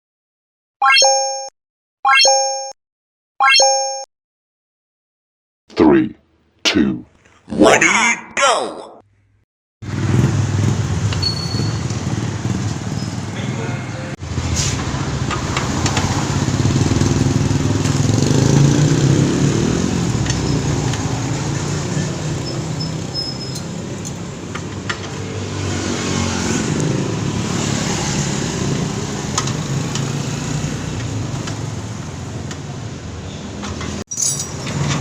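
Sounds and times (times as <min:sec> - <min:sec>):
small vehicle engine running: 0:14.2 - 0:22.2.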